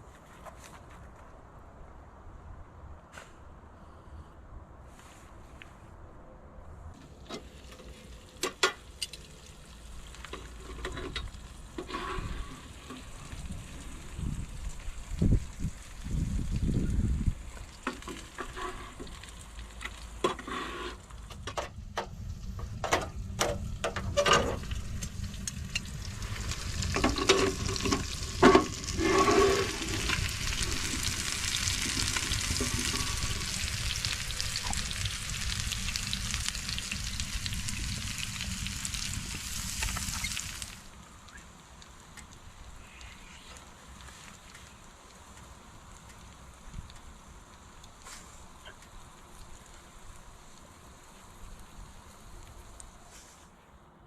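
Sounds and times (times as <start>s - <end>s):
food sizzling: 7.4s - 21.2s, 24.1s - 53.0s.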